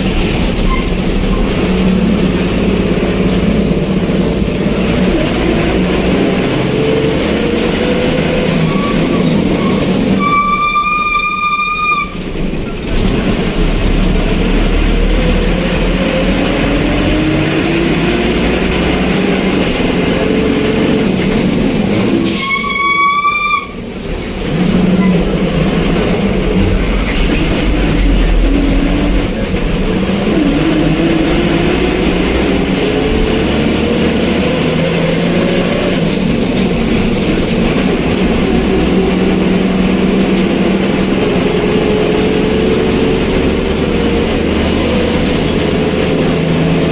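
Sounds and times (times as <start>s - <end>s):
vehicle engine accelerating: 0.0s - 10.6s, 12.2s - 22.4s, 23.8s - 46.9s
travel noise: 0.0s - 46.9s
vehicle horn: 8.6s - 12.3s, 22.3s - 23.9s.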